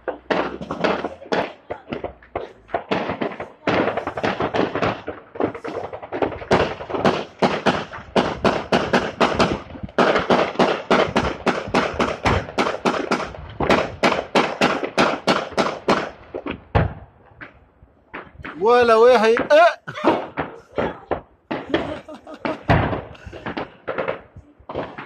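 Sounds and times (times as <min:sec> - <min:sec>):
anti-aircraft gunfire: 0:00.0 - 0:19.5, 0:20.1 - 0:25.0.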